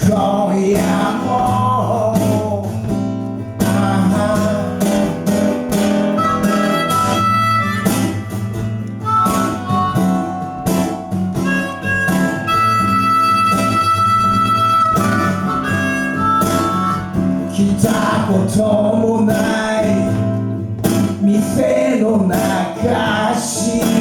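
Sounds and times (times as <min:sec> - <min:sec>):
person singing: 0:00.0 - 0:02.8, 0:03.6 - 0:05.4, 0:16.8 - 0:20.4, 0:21.1 - 0:24.0
strummed acoustic guitar: 0:00.0 - 0:24.0
harmonica playing held notes: 0:05.7 - 0:17.6.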